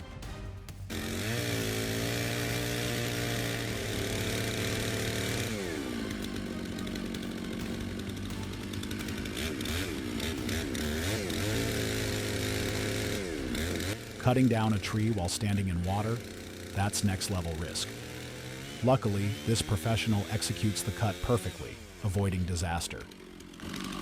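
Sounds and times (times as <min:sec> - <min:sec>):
chainsaw revving: 0:00.9 - 0:24.0.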